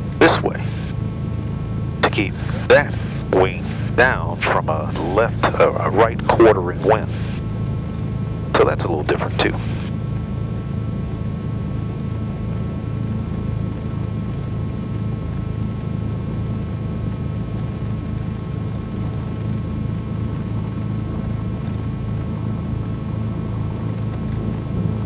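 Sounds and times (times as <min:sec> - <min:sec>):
piston engines droning: 0:00.0 - 0:13.8, 0:20.0 - 0:25.0.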